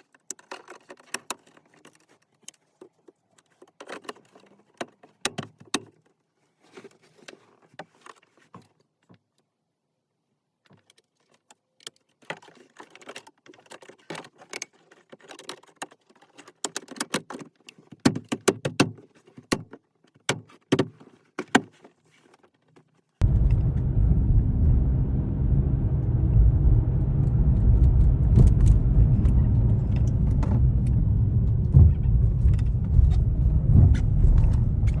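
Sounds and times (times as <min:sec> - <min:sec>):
car driving heard from inside: 0:23.2 - 0:35.0.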